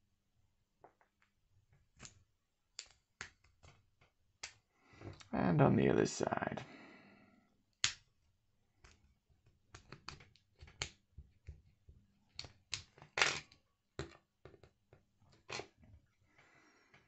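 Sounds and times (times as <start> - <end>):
plastic tool scraping and clicking: 8.8 - 11.7.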